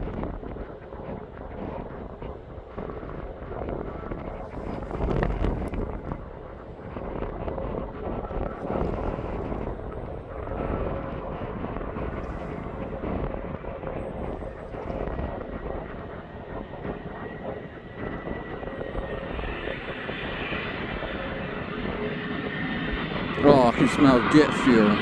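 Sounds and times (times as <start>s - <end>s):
jet engines roaring: 0.1s - 25.0s.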